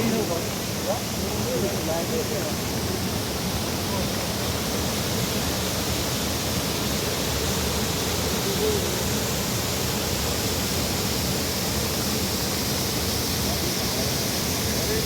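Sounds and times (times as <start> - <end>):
mountain stream rushing: 0.0 - 15.0.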